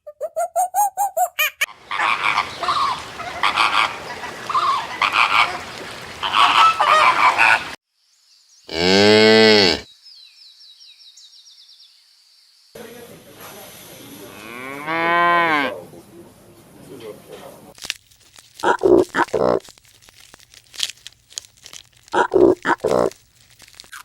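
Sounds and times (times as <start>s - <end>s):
geese honking: 1.7s - 7.8s
cow mooing: 8.7s - 9.8s, 14.3s - 15.8s.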